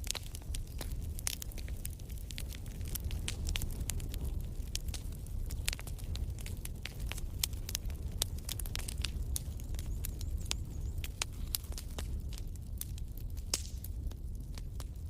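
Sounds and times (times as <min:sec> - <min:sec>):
low rumble of flames: 0:00.0 - 0:15.0
wood fire crackling: 0:00.0 - 0:15.0
sharp pops and snaps: 0:04.7 - 0:14.9.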